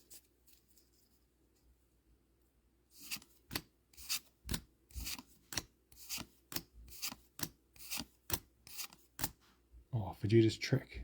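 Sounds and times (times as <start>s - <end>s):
cards sliding with a swish: 2.9s - 9.5s.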